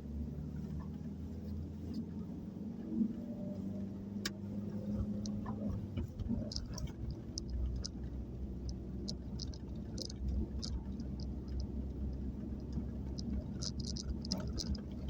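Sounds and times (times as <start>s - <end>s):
van engine rumble inside: 0.0s - 15.0s
light ticks and rattles: 4.2s - 15.0s.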